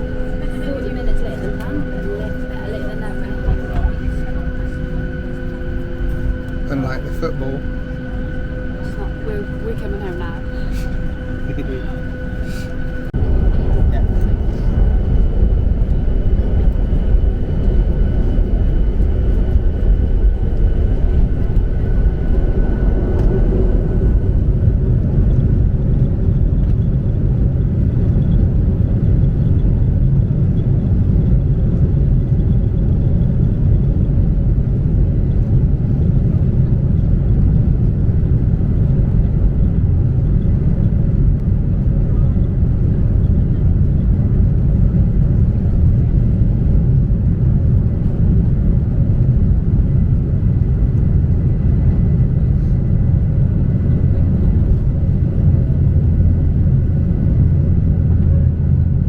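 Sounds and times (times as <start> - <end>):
jet engine rumble in cabin: 0.0 - 59.0.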